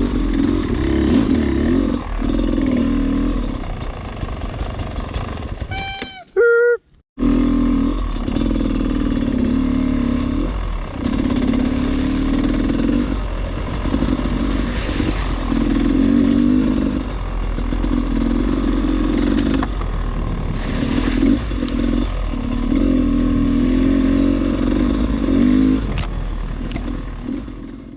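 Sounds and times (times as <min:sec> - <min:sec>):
dirt bike engine revving: 0:00.0 - 0:06.4, 0:07.2 - 0:27.9
bike clattering over rough ground: 0:00.1 - 0:06.0, 0:10.5 - 0:23.0.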